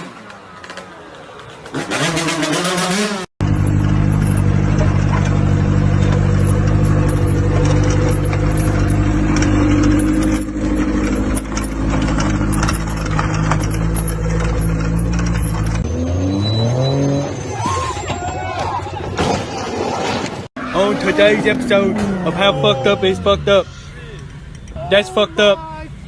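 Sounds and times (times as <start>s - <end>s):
light rattling: 3.4s - 15.8s
car engine droning: 3.4s - 17.4s.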